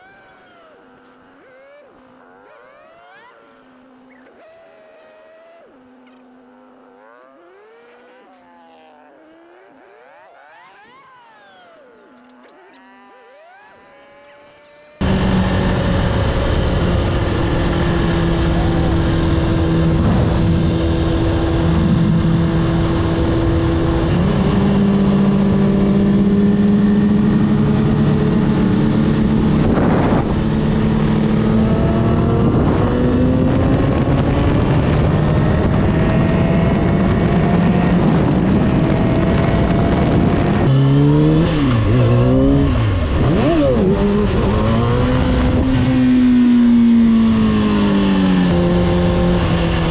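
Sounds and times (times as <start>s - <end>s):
motorcycle engine revving: 0.0s - 49.9s
wind and road noise: 15.0s - 49.9s.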